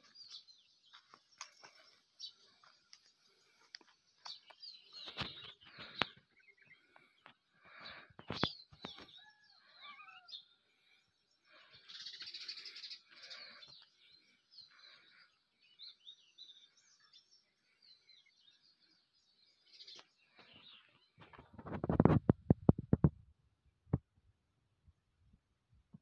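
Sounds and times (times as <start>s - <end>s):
birds chirping: 0.0s - 22.1s.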